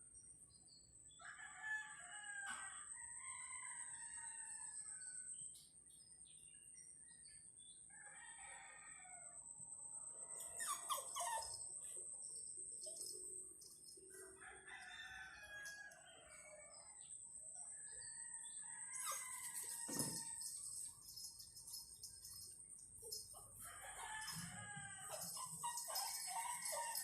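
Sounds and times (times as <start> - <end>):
faint rooster crowing: 1.2 - 5.5, 7.9 - 11.4, 14.1 - 20.9, 23.1 - 27.0.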